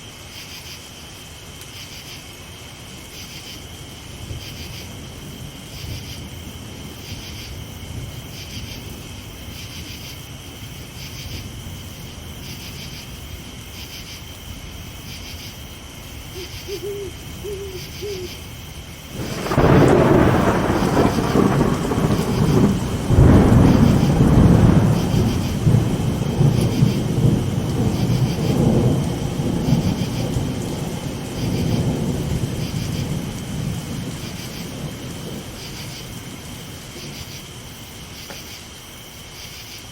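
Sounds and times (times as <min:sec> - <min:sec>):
crickets chirping: 0:00.0 - 0:39.9
rain: 0:00.0 - 0:39.9
owl hooting: 0:16.3 - 0:18.5
thunder crashing and rolling: 0:19.1 - 0:37.6.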